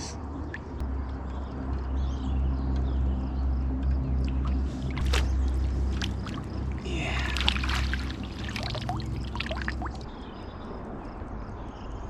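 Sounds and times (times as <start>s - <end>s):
low steady hum: 0.0s - 10.7s
water splashing: 4.3s - 10.2s
fish thrashing at surface: 4.9s - 10.0s.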